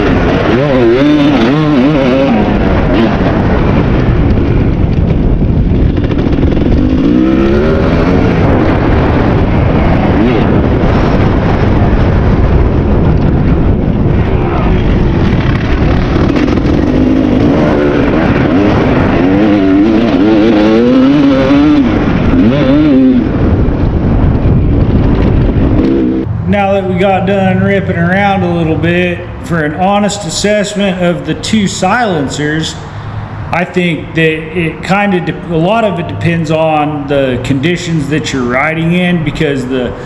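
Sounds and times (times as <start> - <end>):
two-stroke motorcycle engine revving: 0.0 - 14.1, 14.7 - 29.8.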